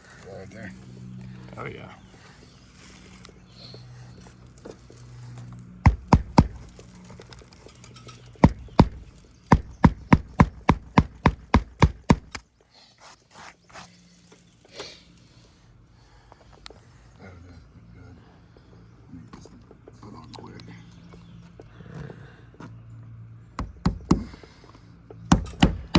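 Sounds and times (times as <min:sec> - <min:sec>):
hammer nailing shingle: 0:05.8 - 0:06.8, 0:08.3 - 0:12.4, 0:23.6 - 0:24.6, 0:25.3 - 0:25.9.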